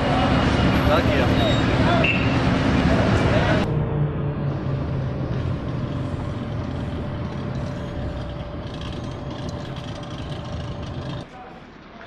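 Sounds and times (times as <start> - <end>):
engine running low rumble: 1.8 - 11.3.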